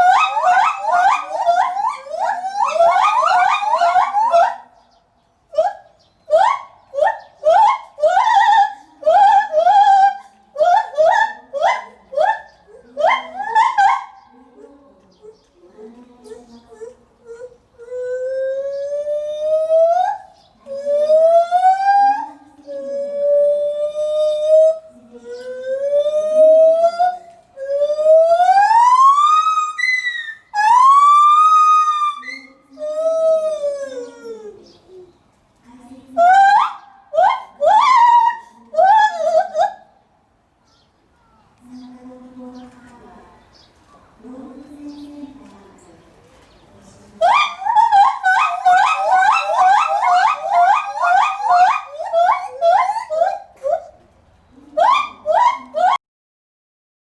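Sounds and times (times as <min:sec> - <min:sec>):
gibbon hooting calls: 0:00.0 - 0:04.8, 0:05.5 - 0:14.4, 0:16.3 - 0:35.2, 0:36.2 - 0:40.0, 0:47.2 - 0:56.0.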